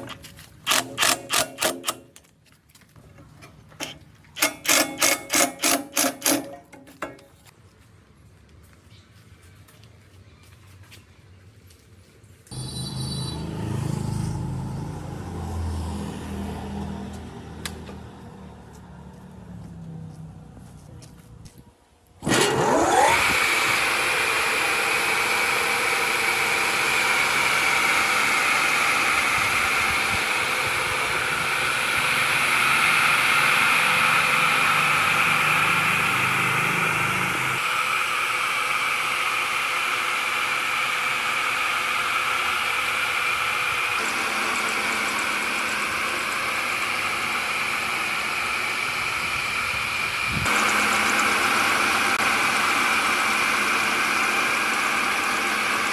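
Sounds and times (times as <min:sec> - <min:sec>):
woodworking machine motor whine: 0:12.5 - 0:19.0, 0:22.2 - 0:55.9.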